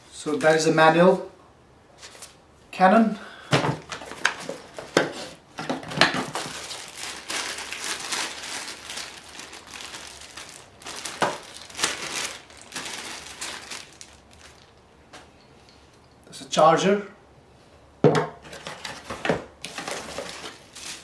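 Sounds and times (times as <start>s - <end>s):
packaging crinkling and rustling: 3.6s - 14.9s, 18.5s - 21.0s.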